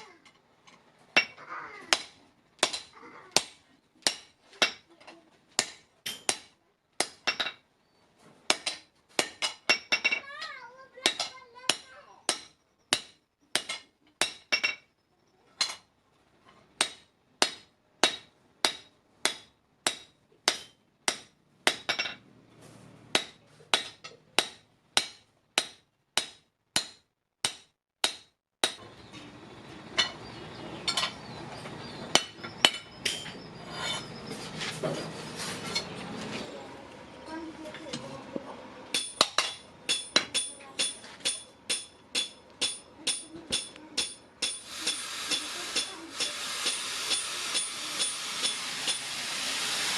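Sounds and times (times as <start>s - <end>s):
hammer striking steel: 5.6s - 7.6s, 11.0s - 14.8s, 16.8s - 22.2s, 23.1s - 28.9s, 32.1s - 34.1s, 38.9s - 49.2s.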